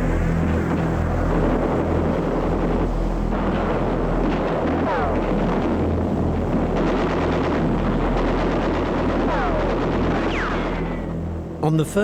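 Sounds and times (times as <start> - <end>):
gunfire: 6.6 - 11.2.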